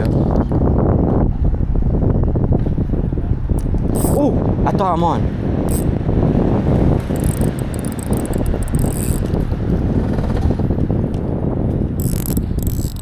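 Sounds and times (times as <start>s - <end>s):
fishing reel gears ticking: 4.0s - 4.2s, 5.7s - 5.9s, 7.0s - 9.3s, 12.0s - 13.0s.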